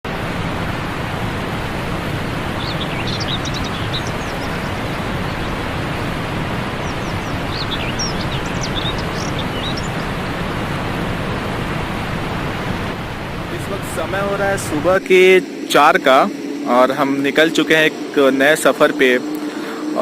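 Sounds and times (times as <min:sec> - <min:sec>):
steady rushing noise: 0:00.0 - 0:20.0
small birds chirping: 0:01.5 - 0:11.5.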